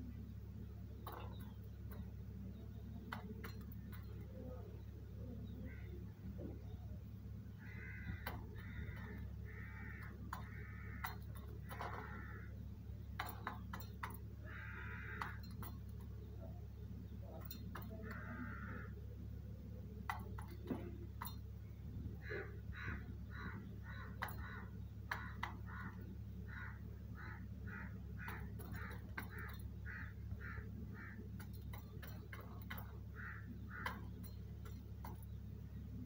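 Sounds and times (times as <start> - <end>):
steady low hum: 0.0 - 36.0
sharp clicks: 7.6 - 19.0, 19.9 - 36.0.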